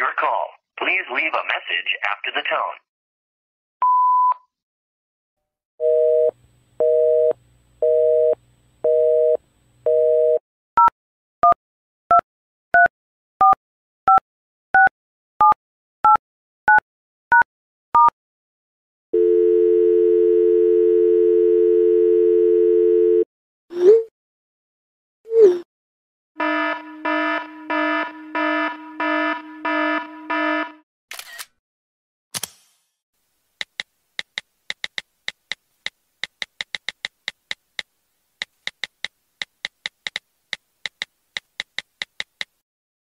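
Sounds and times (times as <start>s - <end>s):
busy signal beeps: 3.8s - 4.4s, 19.2s - 23.2s
steady dial tone: 5.8s - 11.6s, 19.2s - 23.3s.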